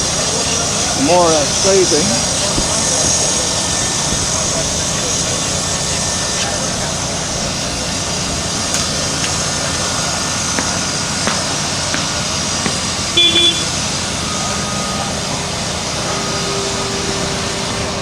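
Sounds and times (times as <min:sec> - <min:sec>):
track repair machinery running: 0:00.0 - 0:18.0.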